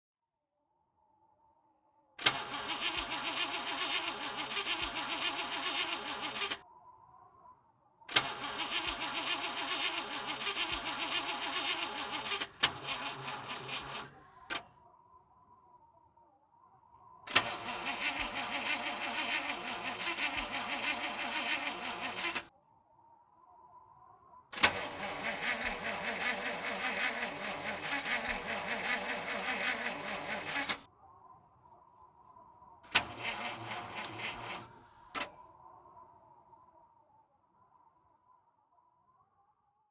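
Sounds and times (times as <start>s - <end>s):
starter motor cranking engine: 2.2s - 6.6s, 8.1s - 14.7s, 17.3s - 22.5s, 24.6s - 30.9s, 32.9s - 35.4s.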